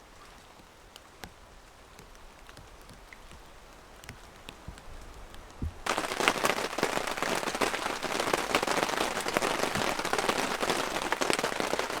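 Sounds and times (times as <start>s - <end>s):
heavy rain pattering: 1.7s - 12.0s.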